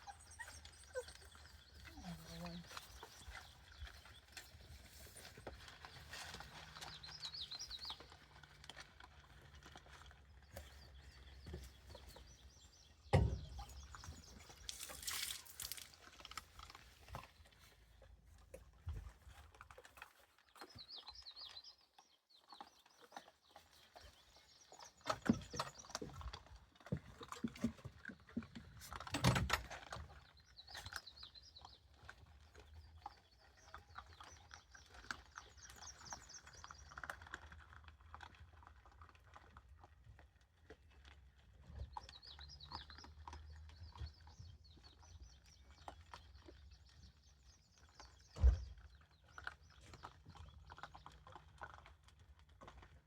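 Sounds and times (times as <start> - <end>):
rustling: 13.9 - 18.0.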